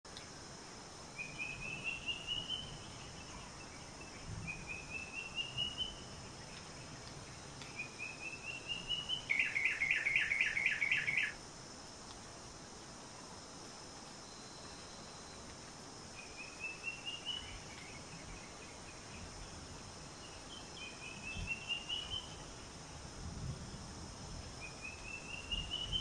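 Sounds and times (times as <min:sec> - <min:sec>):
steady hiss: 0:00.1 - 0:26.0
bird singing: 0:01.2 - 0:11.4, 0:16.1 - 0:19.6, 0:20.2 - 0:22.4, 0:24.6 - 0:26.0.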